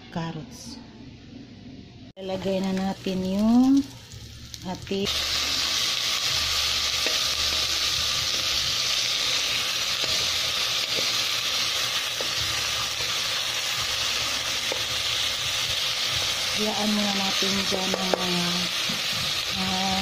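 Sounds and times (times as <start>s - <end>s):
bones sizzling in hot oil: 2.4s - 20.0s.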